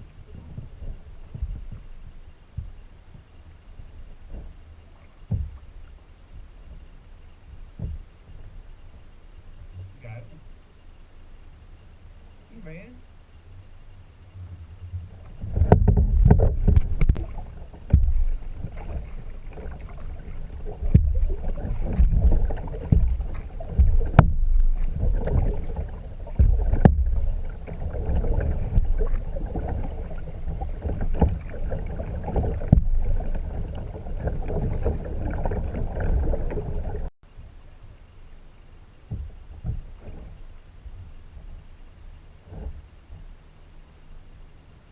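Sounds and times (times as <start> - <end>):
steady low rumble: 0.0 - 44.9
water splashing and sloshing: 0.0 - 44.9
sharp knocks: 17.9 - 18.4, 21.9 - 24.8.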